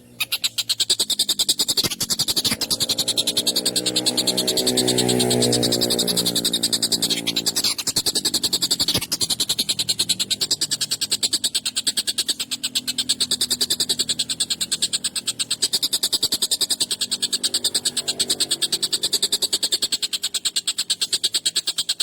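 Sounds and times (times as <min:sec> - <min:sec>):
kingfisher harsh chattering call: 0:00.1 - 0:22.0.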